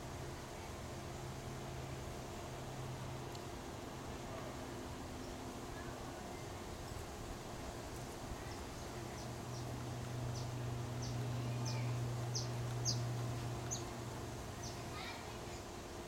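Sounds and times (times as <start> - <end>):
low steady hum: 0.0 - 16.0
bird chirping: 10.3 - 14.0, 14.6 - 14.9.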